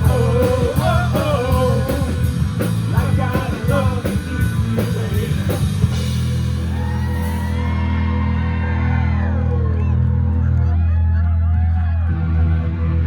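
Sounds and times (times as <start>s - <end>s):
drums and cymbals: 0.0s - 7.7s
live rock band playing: 0.0s - 10.8s.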